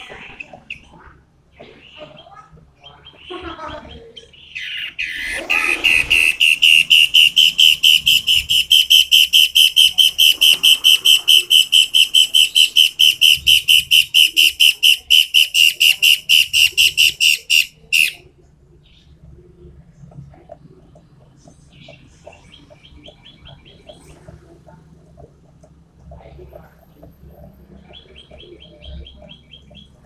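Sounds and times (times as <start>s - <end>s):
songbird whistled song: 2.0s - 19.2s, 27.4s - 30.0s.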